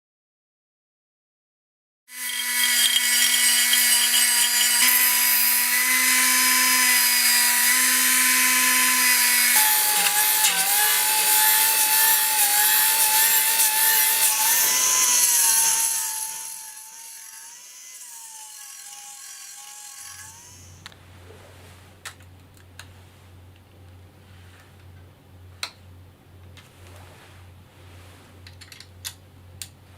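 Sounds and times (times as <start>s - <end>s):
pneumatic belt sander whine: 2.1s - 17.4s
belt grinding on workpiece: 2.1s - 20.8s.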